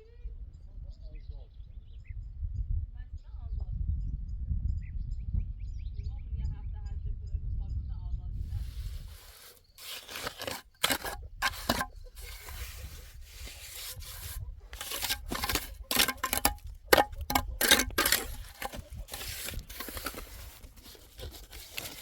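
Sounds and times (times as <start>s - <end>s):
rough scraping and rubbing: 8.5s - 22.0s.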